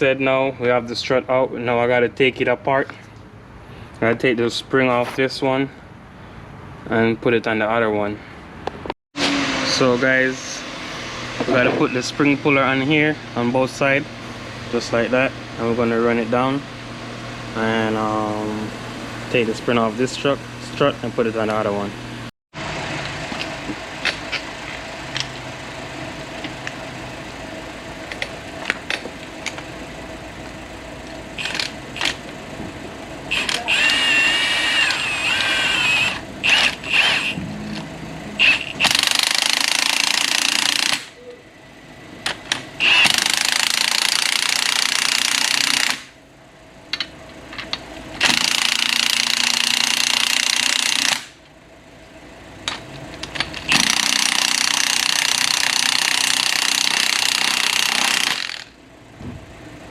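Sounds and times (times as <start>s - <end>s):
impact wrench hammering: 38.4s - 41.1s, 42.3s - 46.2s, 48.2s - 51.4s, 53.5s - 58.8s.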